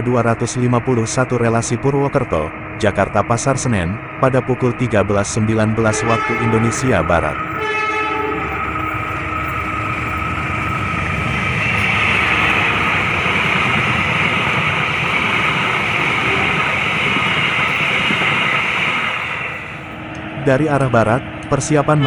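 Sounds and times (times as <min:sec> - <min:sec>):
locomotive passing: 0:00.0 - 0:22.0
train wheels rushing on rails: 0:04.3 - 0:21.9.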